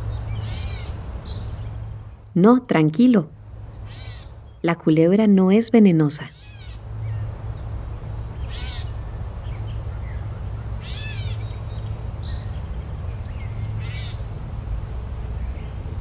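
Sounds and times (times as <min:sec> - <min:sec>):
bird trill: 0:00.0 - 0:02.4, 0:03.8 - 0:04.6, 0:06.3 - 0:07.6, 0:08.2 - 0:14.5
steady low rumble: 0:00.0 - 0:16.0.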